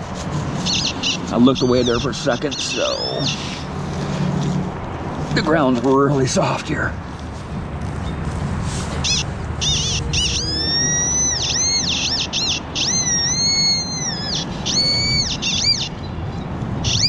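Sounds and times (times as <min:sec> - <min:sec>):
low rumble of handling noise: 0:03.6 - 0:11.8.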